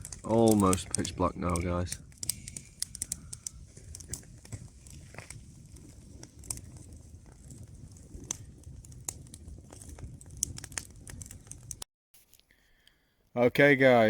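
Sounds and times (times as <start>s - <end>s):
fire pops and snaps: 0.0s - 13.0s
campfire crackling: 0.0s - 13.1s.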